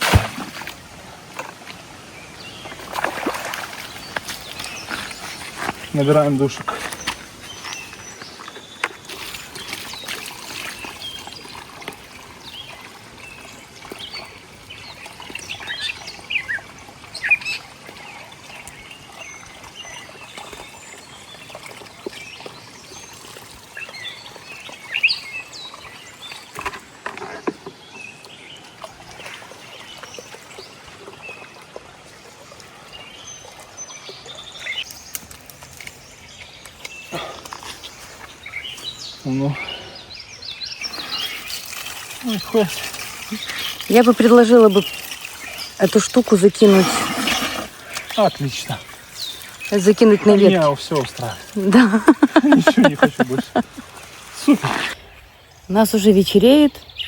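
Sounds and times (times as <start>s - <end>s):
small birds chirping: 2.1s - 11.7s, 32.9s - 57.0s
faint outdoor background: 32.7s - 57.0s.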